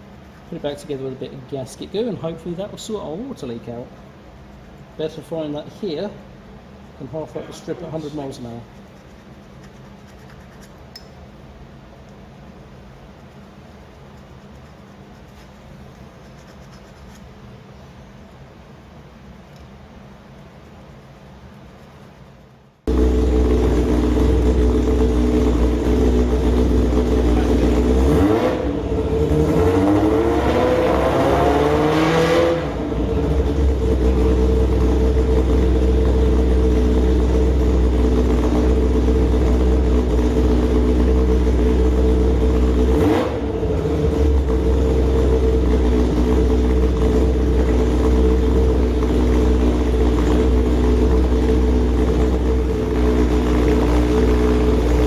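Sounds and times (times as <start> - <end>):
race engine running on a dyno: 22.9 - 55.0.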